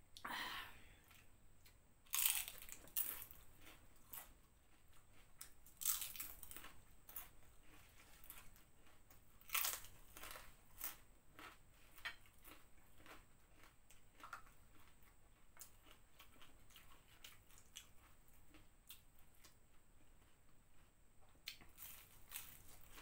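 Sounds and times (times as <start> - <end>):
crunching crispy snacks: 2.1 - 15.0, 21.5 - 23.0.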